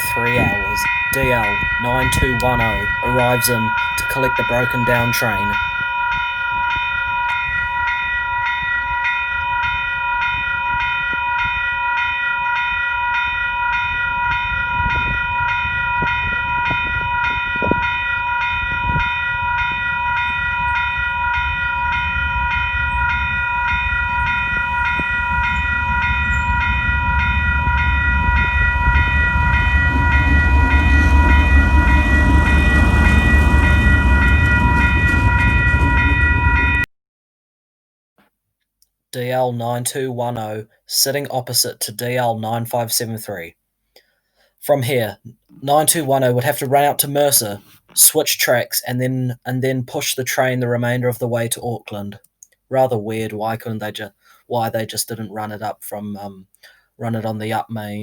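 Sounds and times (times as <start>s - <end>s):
diesel locomotive engine rumble: 0.0s - 36.9s
level crossing bells ringing: 0.0s - 36.9s.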